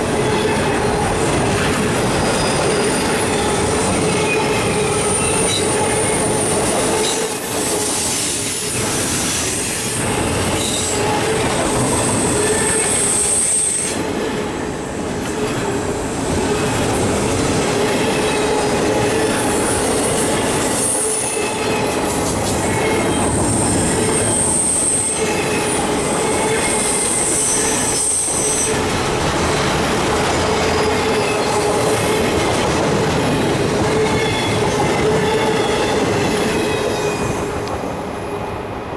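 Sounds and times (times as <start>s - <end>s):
freight train wheels rumbling: 0.0s - 38.9s
high-pitched wheel squeal: 2.2s - 8.4s, 10.6s - 14.0s, 22.6s - 28.8s.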